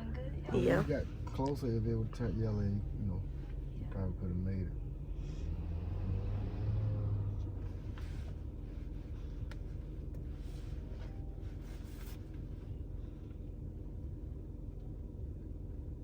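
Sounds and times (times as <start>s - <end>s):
car idling: 0.0s - 5.4s, 7.4s - 16.0s
faint rustles and clicks: 7.4s - 13.5s.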